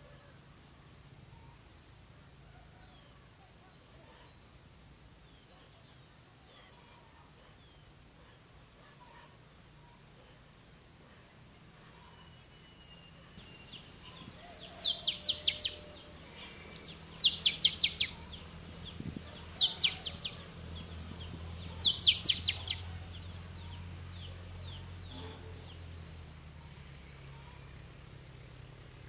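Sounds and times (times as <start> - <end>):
bird singing whistled phrase: 16.9 - 18.2, 21.5 - 22.8.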